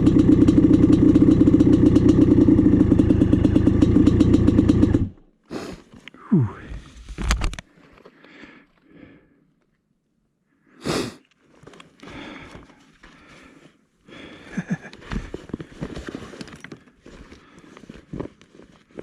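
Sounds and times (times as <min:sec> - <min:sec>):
puff of air on microphone: 0:05.5 - 0:07.5.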